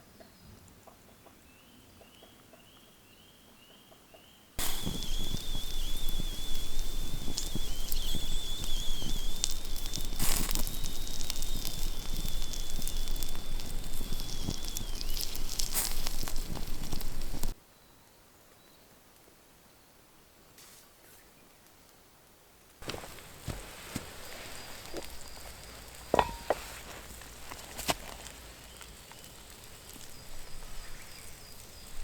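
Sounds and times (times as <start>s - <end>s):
campfire crackling and popping: 4.6s - 17.6s, 22.8s - 32.0s
faint high chirps: 4.6s - 18.8s, 24.3s - 26.6s.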